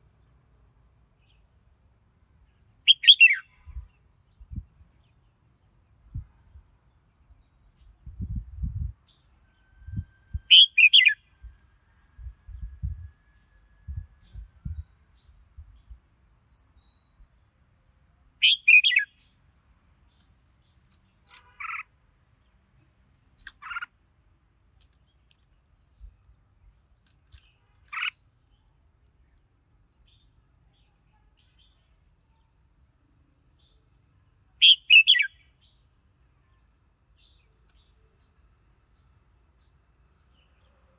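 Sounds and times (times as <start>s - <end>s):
bird singing: 2.8s - 5.3s, 9.0s - 11.3s, 18.4s - 19.4s, 33.6s - 35.9s.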